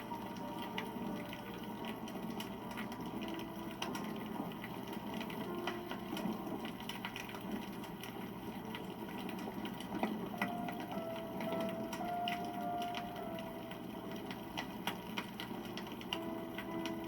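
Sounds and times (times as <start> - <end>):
fire rustle: 0.0 - 17.0
wood fire crackling and popping: 0.0 - 17.0.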